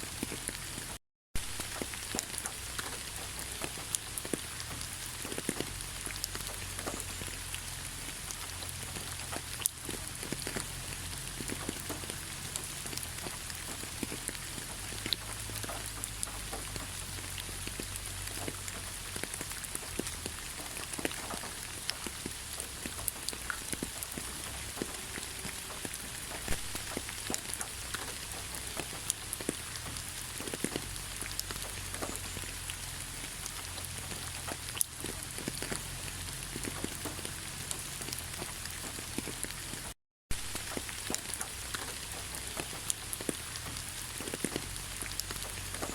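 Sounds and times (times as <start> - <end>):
raindrops ticking close by: 0.0 - 45.9
steady rain falling: 0.0 - 45.9.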